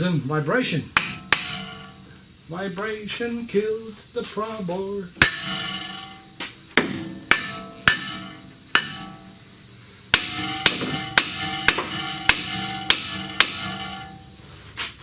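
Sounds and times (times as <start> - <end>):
hammer striking steel: 1.0 - 2.0, 5.2 - 9.4, 10.1 - 14.4.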